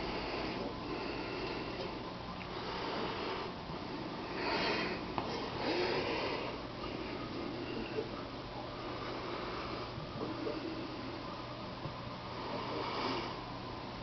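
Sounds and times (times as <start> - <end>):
steady low hum: 0.0 - 14.0
person breathing and sniffing: 4.2 - 8.1.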